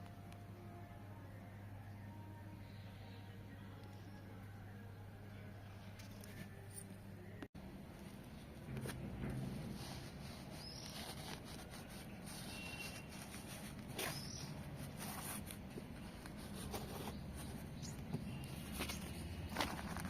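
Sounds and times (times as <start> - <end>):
high bird chirps: 14.0 - 14.6.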